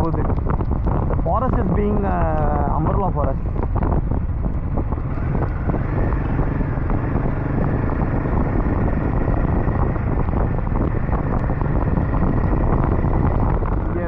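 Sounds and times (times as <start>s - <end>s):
motorcycle engine running: 0.0s - 14.0s
wind rushing over microphone: 0.0s - 14.0s.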